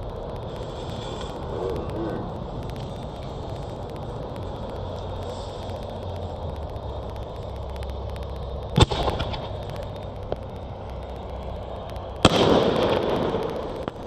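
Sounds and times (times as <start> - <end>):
firework bangs: 8.7 - 9.9, 12.2 - 14.0.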